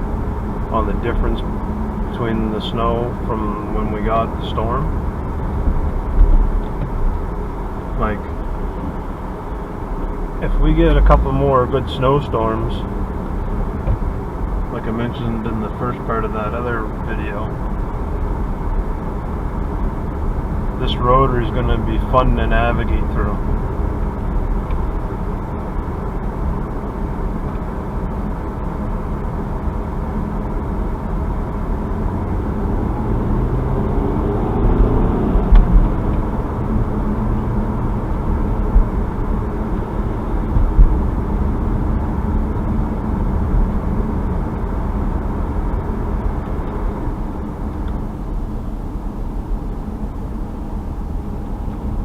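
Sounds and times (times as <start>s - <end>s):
car engine accelerating: 0.0s - 52.0s
low thumps: 4.9s - 9.0s, 13.2s - 14.7s, 34.6s - 42.7s.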